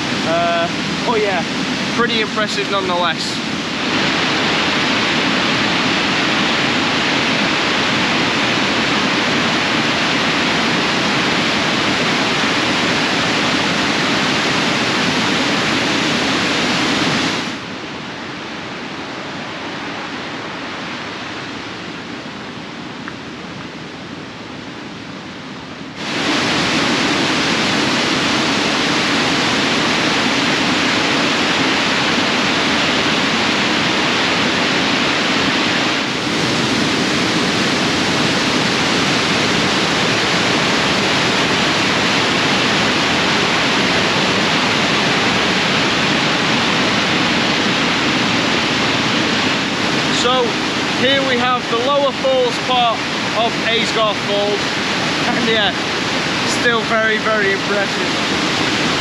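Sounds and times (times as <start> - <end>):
waterfall rushing: 0.0 - 17.8, 25.9 - 59.0.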